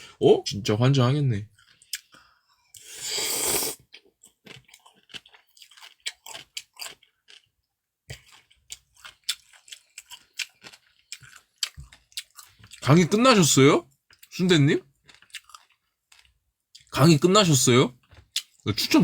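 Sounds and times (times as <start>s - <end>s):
wet chewing with crunchy clicks: 1.5s - 2.9s, 3.8s - 12.9s, 13.9s - 17.0s, 18.0s - 18.7s
noodle slurp: 2.8s - 3.8s.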